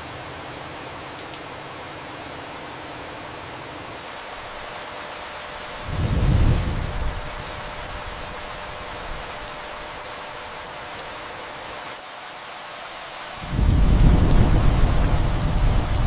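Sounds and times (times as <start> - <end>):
rain hiss: 0.0 - 16.0
low roll of thunder: 5.9 - 7.4, 13.4 - 16.0.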